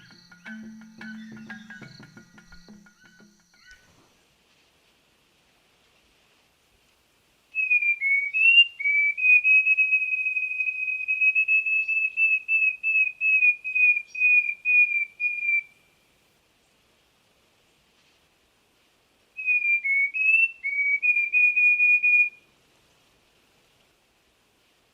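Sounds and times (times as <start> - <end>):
songbird whistling song: 0.0 - 4.1, 7.6 - 16.0, 19.4 - 22.4.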